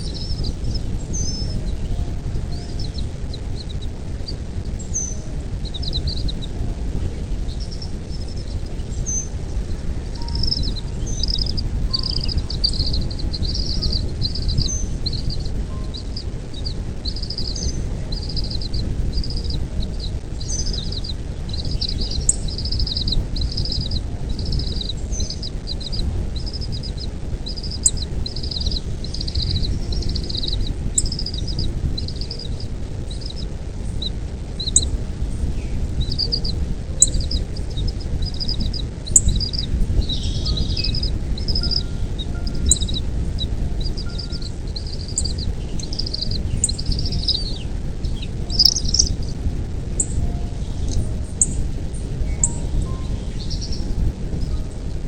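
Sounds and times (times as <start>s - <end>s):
bird chirping: 0.0s - 49.4s, 50.0s - 54.7s
low rumble of noise: 0.0s - 55.0s.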